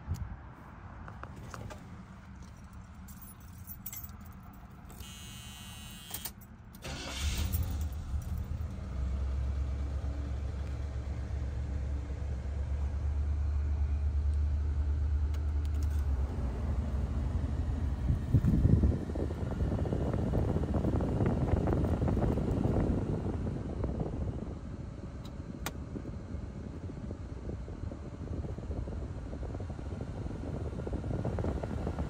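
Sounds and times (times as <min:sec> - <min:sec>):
car engine starting and idling: 0:01.1 - 0:32.0
keys jingling: 0:01.4 - 0:05.1.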